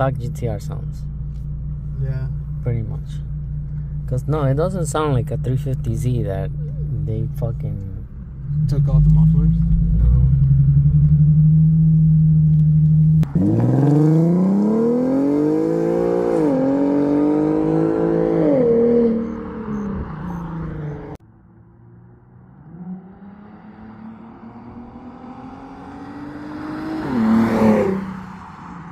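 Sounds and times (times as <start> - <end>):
faint engine hum: 0.0 - 13.3
car engine accelerating: 0.0 - 28.9.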